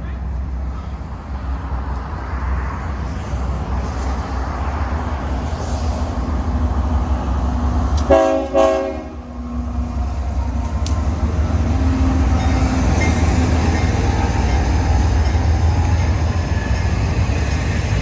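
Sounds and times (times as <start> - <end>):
train rumbling: 0.0 - 18.0
locomotive air horn blasts: 8.0 - 9.2.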